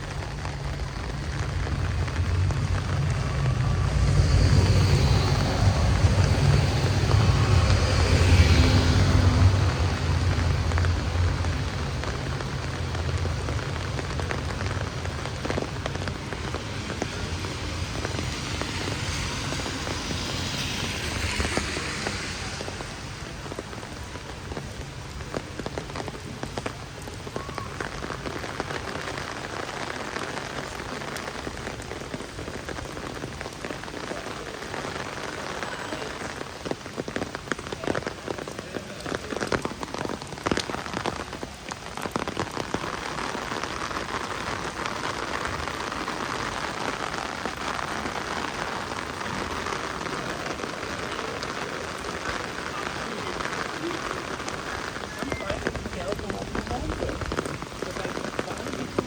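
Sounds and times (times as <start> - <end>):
heavy rain hissing: 0.0 - 59.0
vehicle low hum: 0.2 - 24.9
raindrop clicks: 23.4 - 59.0.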